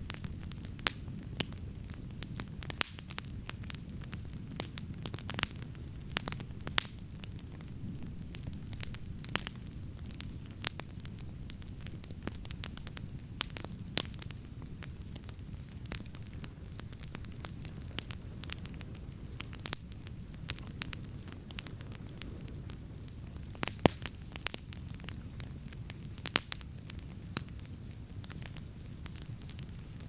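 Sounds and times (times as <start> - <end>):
burning wood crackling and popping: 0.0 - 30.0
campfire flames rumbling: 0.0 - 30.0.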